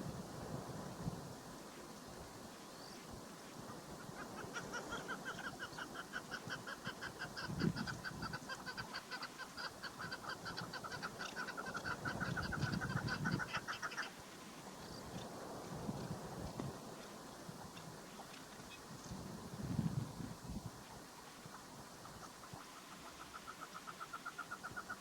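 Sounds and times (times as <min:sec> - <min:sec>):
partridge clucking calls: 0:03.7 - 0:14.2, 0:21.4 - 0:25.0.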